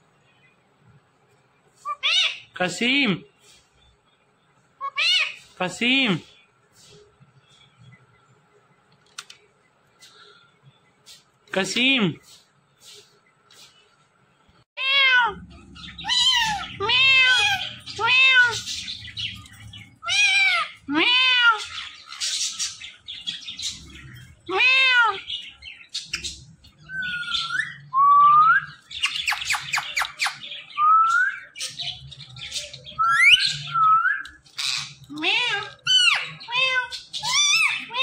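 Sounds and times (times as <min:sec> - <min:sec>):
parrot squawking: 0:01.8 - 0:02.6, 0:04.8 - 0:05.6, 0:14.8 - 0:19.1, 0:19.8 - 0:27.8, 0:32.4 - 0:38.0
parrot chatter: 0:04.8 - 0:05.8, 0:14.8 - 0:27.8, 0:31.5 - 0:38.0.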